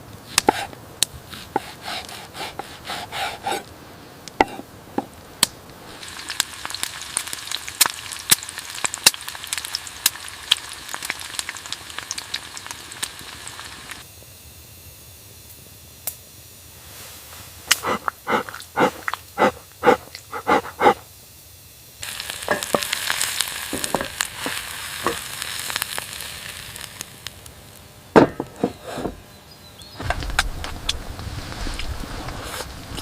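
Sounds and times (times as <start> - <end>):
sizzling hiss with pops: 0.0 - 2.7, 3.6 - 28.1, 29.9 - 33.0
loud knocks: 28.2 - 29.1.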